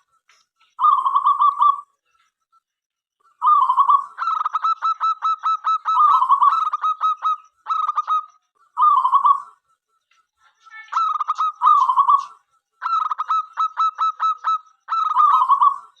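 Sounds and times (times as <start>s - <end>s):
dove cooing trills: 0.8s - 2.0s, 3.3s - 9.8s, 10.9s - 16.0s.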